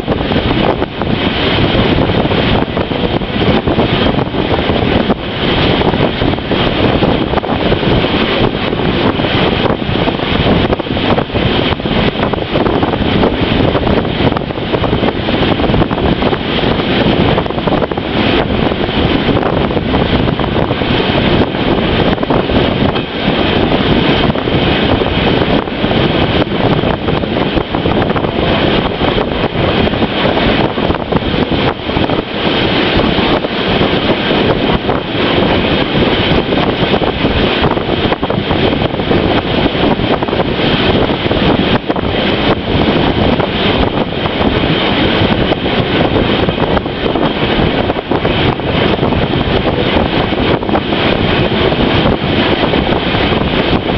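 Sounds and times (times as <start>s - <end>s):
moving train rumble: 0.0s - 53.9s
wind on microphone: 0.0s - 53.9s.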